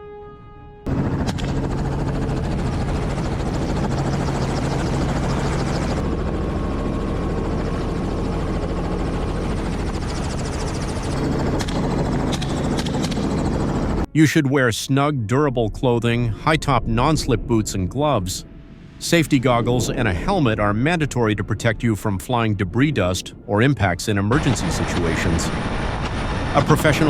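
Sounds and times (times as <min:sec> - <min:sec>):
helicopter rotor and engine: 0:00.9 - 0:14.1, 0:22.8 - 0:27.0.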